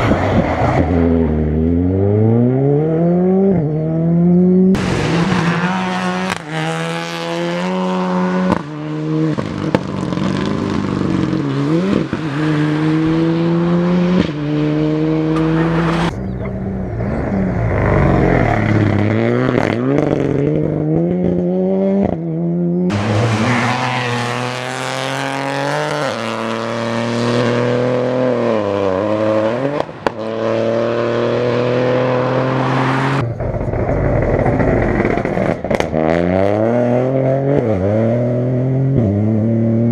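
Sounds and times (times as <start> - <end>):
rally car engine accelerating: 0.0 - 39.9.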